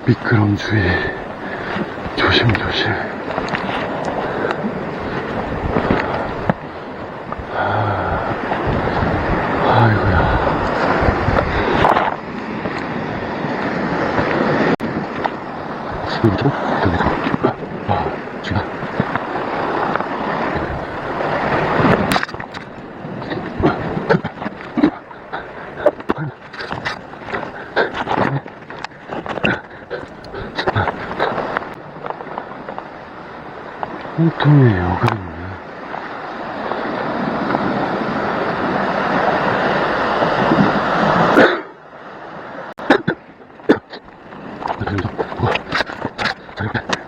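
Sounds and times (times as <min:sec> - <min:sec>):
sea: 0:00.0 - 0:47.0
surf washing against rocks: 0:00.0 - 0:47.0
wind: 0:00.0 - 0:47.0.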